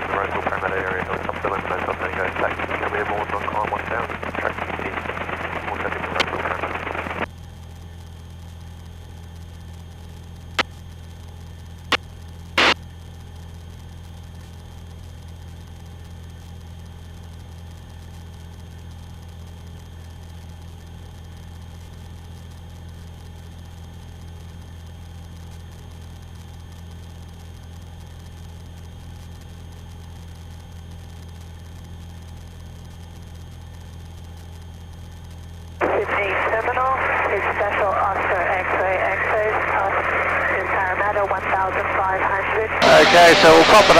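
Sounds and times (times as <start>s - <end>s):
aircraft engine drone: 0.0s - 12.8s, 32.3s - 43.9s
crackling radio hiss: 0.0s - 43.9s.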